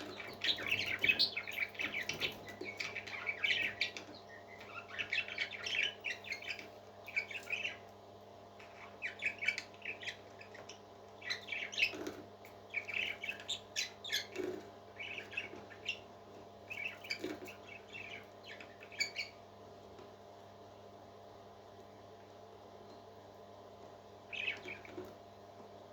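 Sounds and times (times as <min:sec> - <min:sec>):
parrot chirping: 0:00.0 - 0:07.8, 0:08.6 - 0:12.0, 0:12.7 - 0:16.1, 0:16.7 - 0:19.4, 0:24.3 - 0:24.9
steady low hum: 0:00.0 - 0:25.9.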